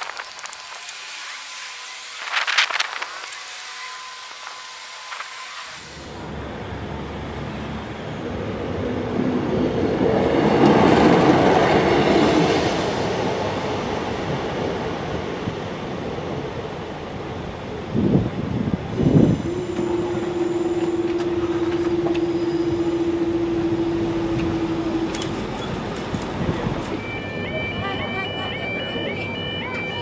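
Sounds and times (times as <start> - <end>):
diesel train rumbling past: 6.0 - 30.0.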